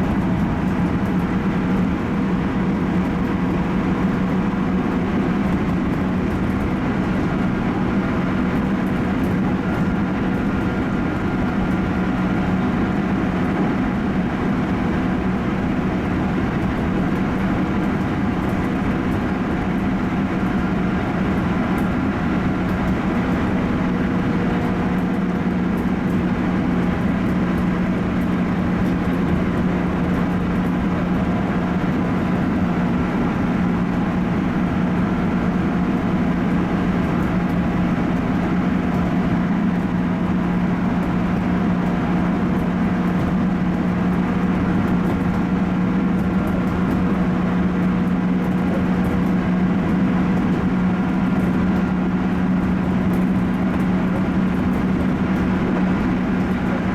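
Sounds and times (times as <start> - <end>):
train running and rail noise: 0.0 - 56.9.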